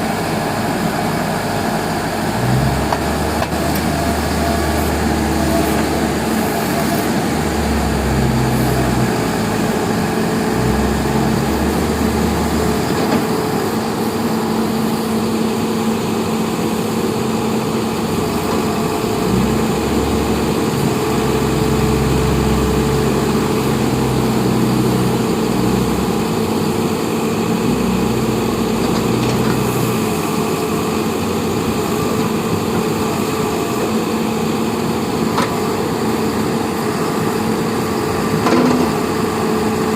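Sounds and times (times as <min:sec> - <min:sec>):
engine rumbling: 0:00.0 - 0:39.9.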